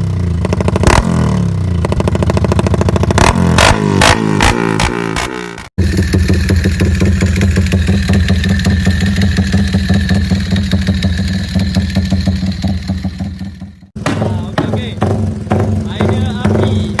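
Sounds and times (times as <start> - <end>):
motorcycle engine idling: 0.0 - 3.3, 5.8 - 17.0.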